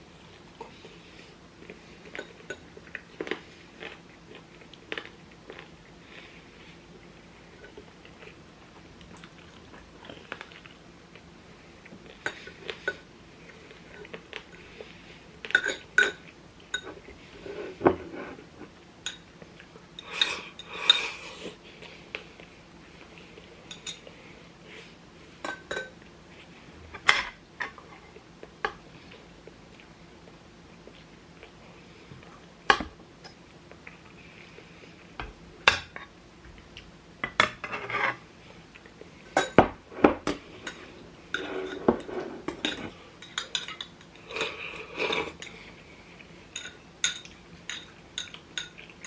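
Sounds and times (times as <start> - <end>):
utensils clinking on dishes: 15.5 - 17.0, 23.7 - 24.2, 39.4 - 45.6, 46.5 - 49.0.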